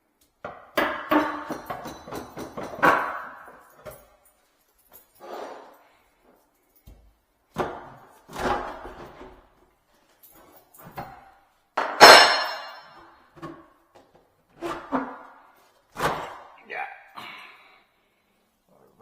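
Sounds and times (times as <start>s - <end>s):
knocks and bangs on sink fitting: 0.4s - 3.4s, 11.8s - 13.6s
short metallic ring: 12.0s - 13.0s.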